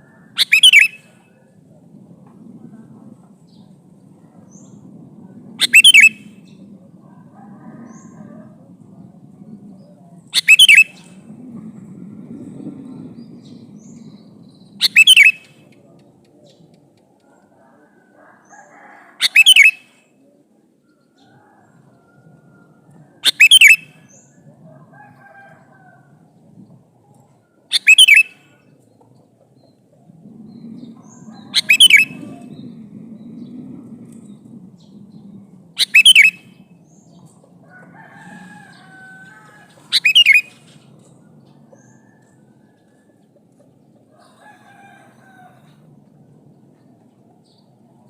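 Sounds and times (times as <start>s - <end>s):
faint low rumble: 0.0s - 19.2s, 20.0s - 27.7s, 28.4s - 48.0s
bulbul calling: 0.4s - 1.2s, 5.6s - 6.5s, 10.3s - 11.2s, 13.2s - 16.8s, 19.2s - 19.9s, 23.2s - 24.4s, 27.7s - 28.6s, 30.3s - 37.1s, 39.4s - 41.2s.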